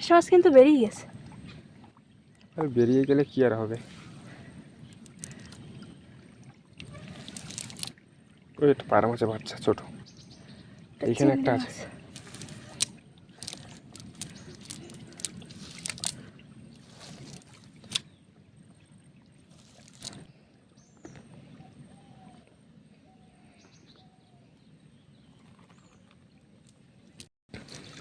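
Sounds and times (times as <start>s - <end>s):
water splashing and sloshing: 0.0s - 24.2s, 24.8s - 28.0s
faint bird chirps: 20.8s - 26.2s.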